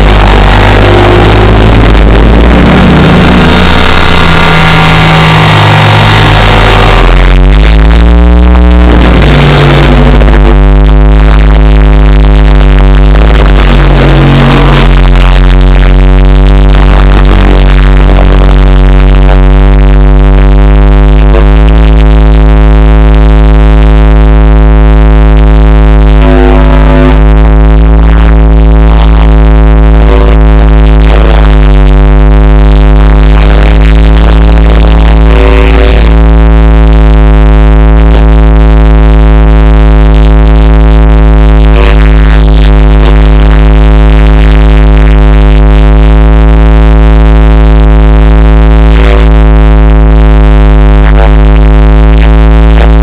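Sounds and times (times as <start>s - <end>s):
synthesizer drone: 0.0s - 53.0s.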